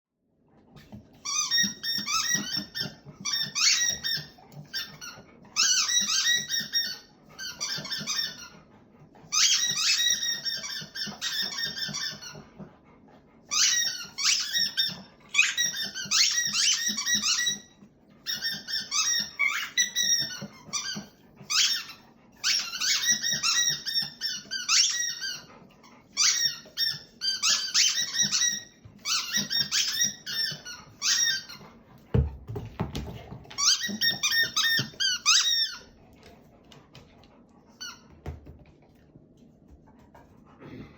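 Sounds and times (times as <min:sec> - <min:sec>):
squeaky toy squeaking: 0:01.2 - 0:08.6, 0:09.3 - 0:12.4, 0:13.5 - 0:31.6, 0:33.5 - 0:35.9.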